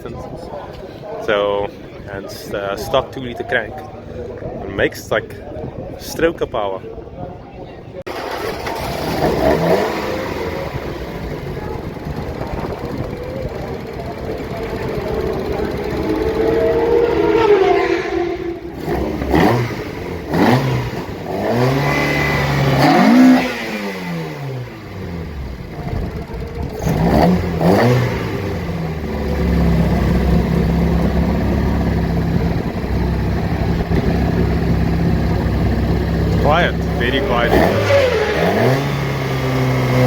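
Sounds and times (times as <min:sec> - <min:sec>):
race cars passing at full throttle: 0:08.1 - 0:40.0
steady engine note: 0:08.1 - 0:40.0.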